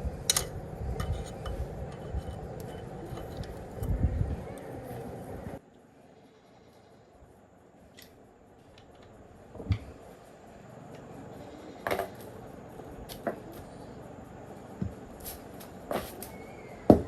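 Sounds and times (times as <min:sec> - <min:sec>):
low background noise: 0:00.0 - 0:17.0
sharp clinks and knocks: 0:00.2 - 0:05.0
clatter: 0:00.3 - 0:04.0.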